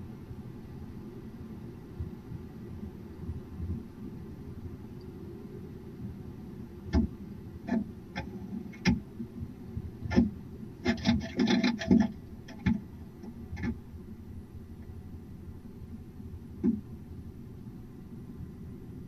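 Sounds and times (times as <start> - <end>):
steady low hum: 0.0 - 19.0
owls knocking and scraping on wood: 10.1 - 12.9.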